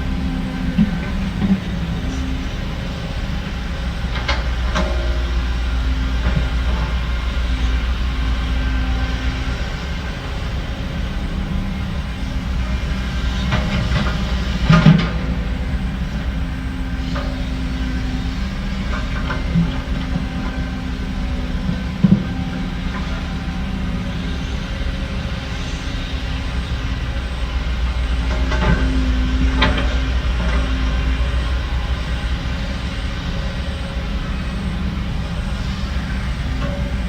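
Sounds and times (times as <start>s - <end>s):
heavy diesel machinery running: 0.0s - 37.0s.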